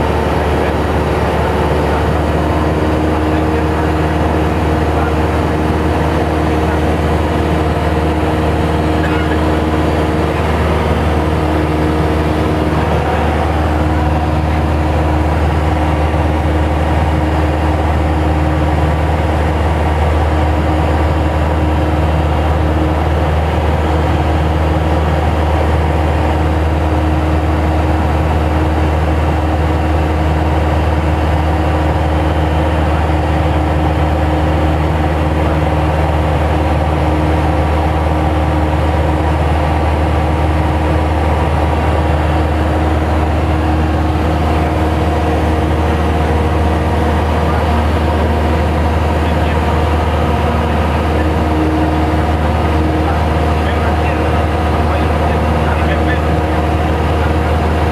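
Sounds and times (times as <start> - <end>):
light aircraft engine droning: 0.0 - 57.9.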